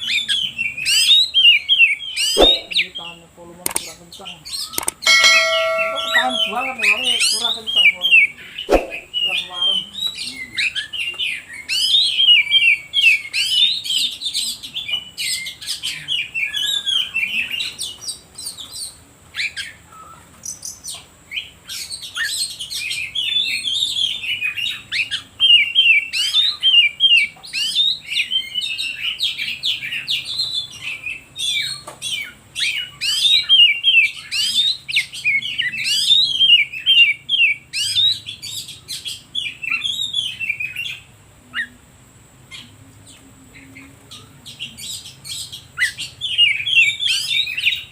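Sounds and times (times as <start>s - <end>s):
bird singing chirps and whistles: 0.0s - 2.8s, 21.8s - 41.0s, 44.2s - 47.9s.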